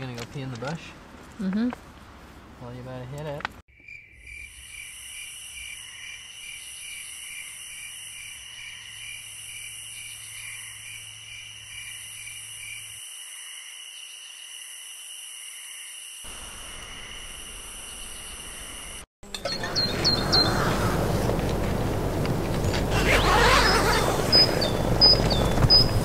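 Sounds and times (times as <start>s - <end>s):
crickets chirring: 3.7s - 26.0s
low hum: 19.3s - 26.0s.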